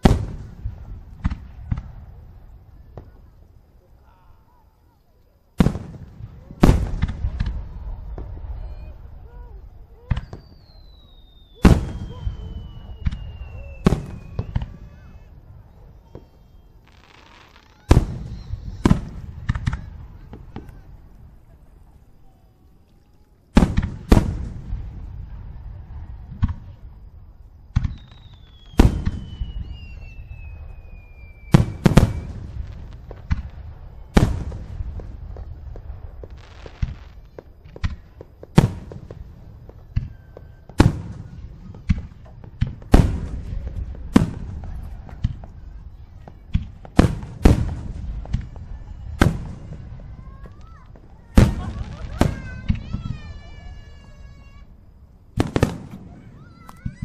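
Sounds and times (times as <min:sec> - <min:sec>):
long falling whistle: 0:08.4 - 0:15.3, 0:16.0 - 0:18.8, 0:27.8 - 0:32.5, 0:40.0 - 0:40.8.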